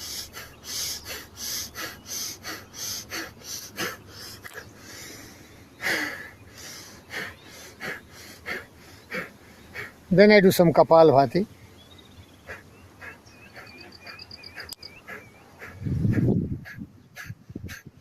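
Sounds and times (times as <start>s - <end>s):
long deep breath: 0.0s - 10.0s
man breathing forcefully through nose: 0.0s - 10.1s, 12.4s - 18.0s.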